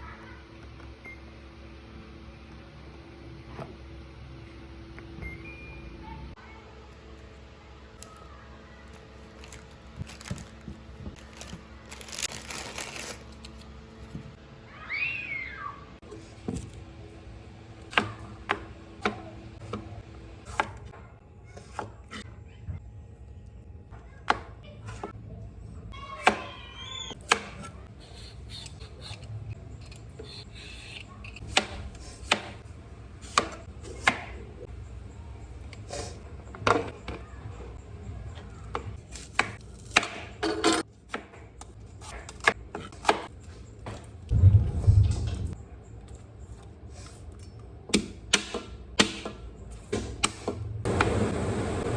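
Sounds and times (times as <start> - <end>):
loud low thud: 44.3 - 45.6.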